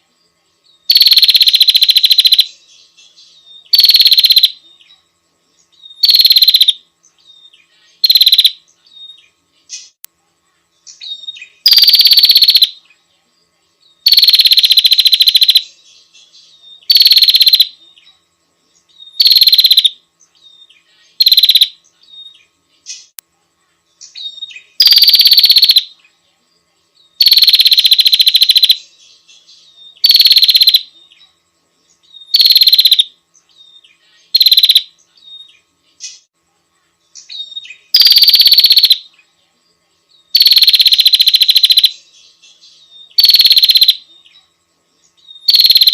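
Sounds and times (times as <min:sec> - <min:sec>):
faint bird chirps: 0:00.0 - 0:45.9
bird buzzing rattle call: 0:00.9 - 0:02.6, 0:03.2 - 0:04.6, 0:06.0 - 0:06.8, 0:07.9 - 0:08.6, 0:10.9 - 0:12.8, 0:14.0 - 0:17.8, 0:19.1 - 0:20.0, 0:21.2 - 0:22.3, 0:24.1 - 0:25.9, 0:27.2 - 0:30.9, 0:32.1 - 0:33.2, 0:34.3 - 0:35.5, 0:37.2 - 0:39.1, 0:40.3 - 0:42.0, 0:42.6 - 0:44.0, 0:45.3 - 0:45.9.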